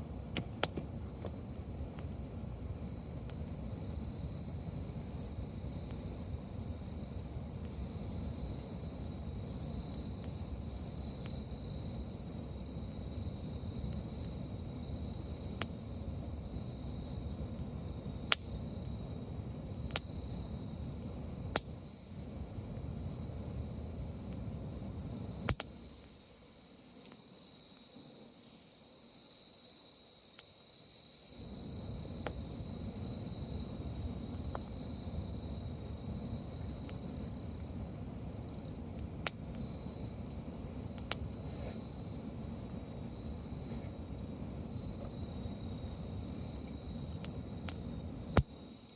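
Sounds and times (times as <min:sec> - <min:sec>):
insects trilling: 0:00.0 - 0:48.9
campfire crackling pops: 0:00.2 - 0:06.2, 0:17.5 - 0:19.0, 0:19.6 - 0:20.2, 0:21.4 - 0:22.0, 0:22.6 - 0:26.1, 0:31.6 - 0:48.6.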